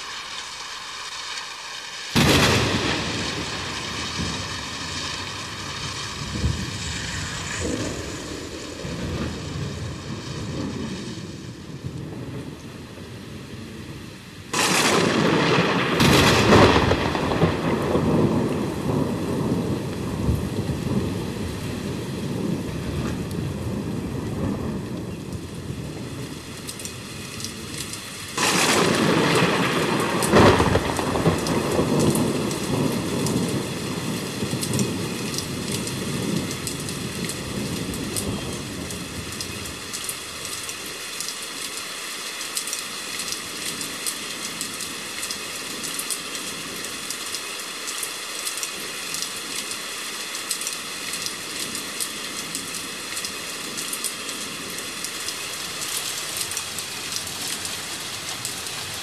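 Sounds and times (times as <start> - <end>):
heavy rain: 0.0 - 59.0
thunder rumbling: 2.1 - 41.1
raindrops ticking: 24.4 - 59.0.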